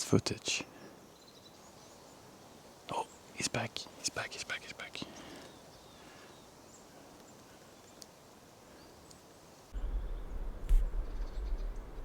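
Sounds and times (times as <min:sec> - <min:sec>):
low rumble on microphone: 0:09.8 - 0:12.0.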